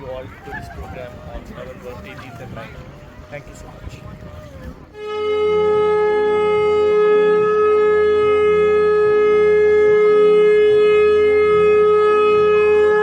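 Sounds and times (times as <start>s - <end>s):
long loud horn-like tone: 4.9s - 13.0s.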